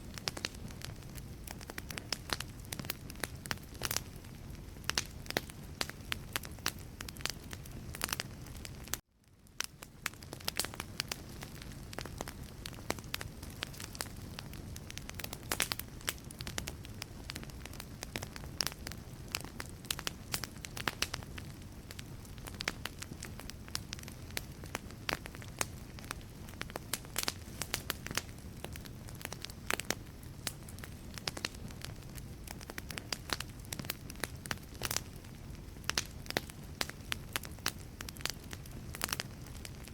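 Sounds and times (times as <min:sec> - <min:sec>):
low rumble of flame: 0:00.0 - 0:39.9
wood logs crackling and popping: 0:00.0 - 0:39.9.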